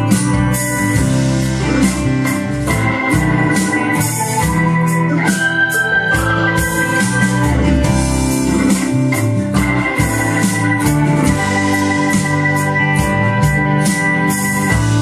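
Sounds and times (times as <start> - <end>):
bass line: 0.0 - 15.0
organ-like keyboard chords: 0.0 - 15.0.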